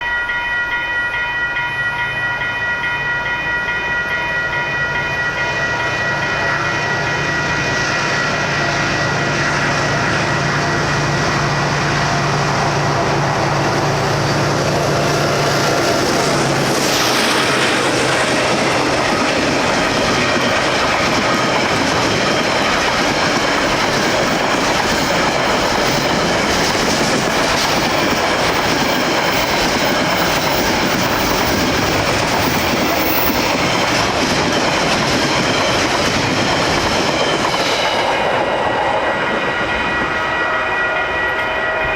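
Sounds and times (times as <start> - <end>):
wheels clacking on rail joints: 12.3 - 41.9.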